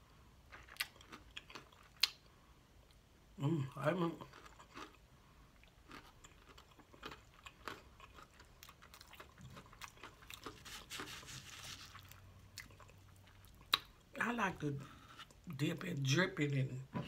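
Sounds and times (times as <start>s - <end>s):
crunchy chewing of fried chicken: 0.4s - 2.4s, 4.2s - 14.1s.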